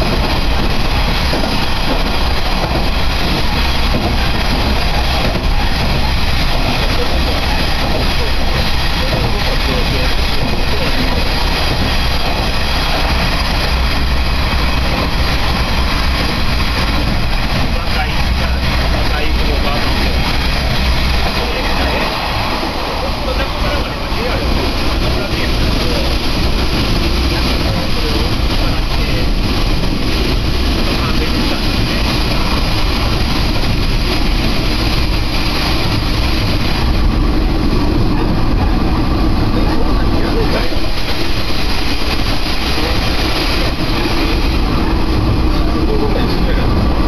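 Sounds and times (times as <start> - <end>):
even rushing noise: 0.0 - 47.0
railcar cabin deep rumble: 0.0 - 47.0.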